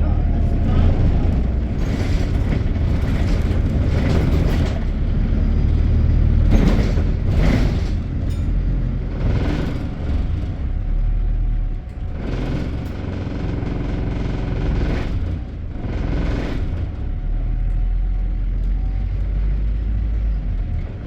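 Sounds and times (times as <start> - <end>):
bus engine rumble: 0.0 - 21.0
road noise: 0.0 - 21.0.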